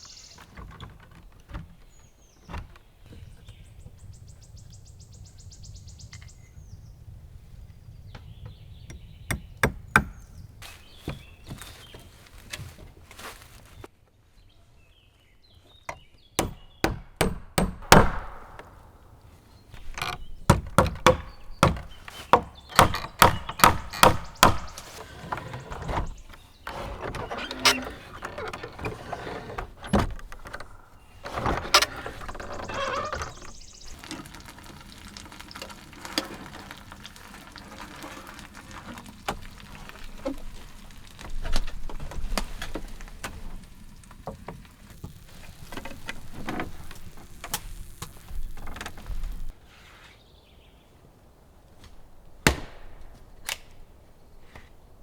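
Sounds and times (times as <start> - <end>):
rustling: 9.9 - 14.0, 18.6 - 50.4
wood chopping blows: 16.4 - 19.0, 20.0 - 25.8, 51.8 - 53.7
irregular knocking: 19.8 - 33.5.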